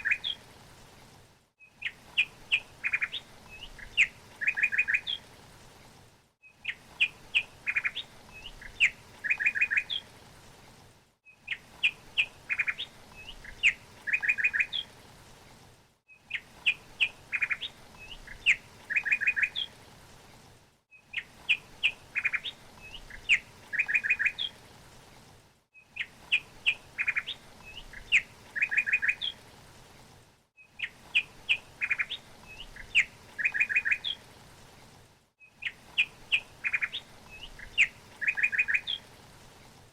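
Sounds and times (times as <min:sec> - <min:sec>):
faint steady hiss: 0:00.0 - 0:39.9
small bird chirping and trilling: 0:21.0 - 0:24.6, 0:25.8 - 0:29.4, 0:30.6 - 0:34.2, 0:35.4 - 0:39.0.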